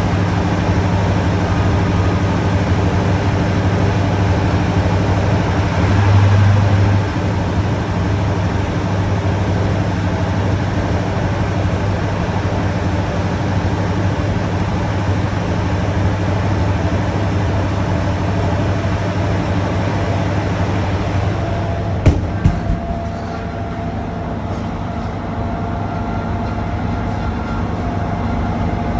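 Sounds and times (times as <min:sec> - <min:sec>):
diesel engine droning: 0:04.6 - 0:09.7.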